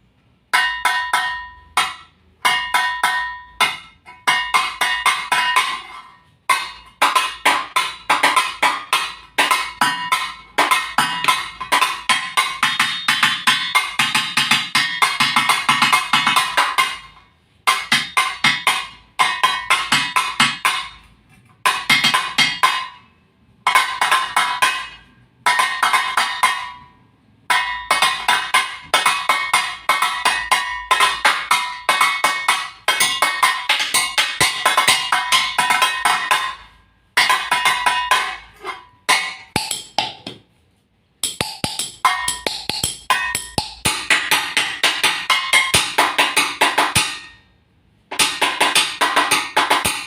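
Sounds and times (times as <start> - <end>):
metallic percussion strikes: 0.4 - 40.3, 41.2 - 50.0.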